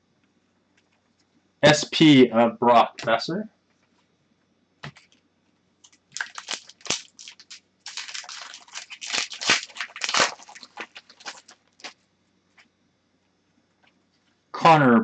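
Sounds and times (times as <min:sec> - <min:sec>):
cards and packaging rustling: 0:05.9 - 0:12.0.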